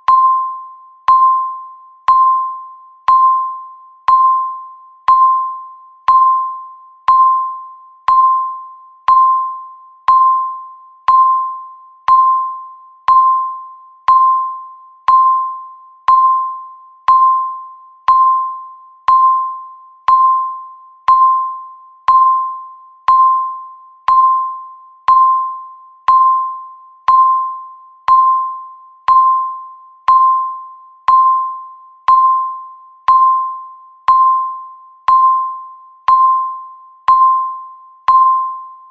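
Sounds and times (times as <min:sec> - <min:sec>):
bell-like timer beeps: 0:00.0 - 0:38.9.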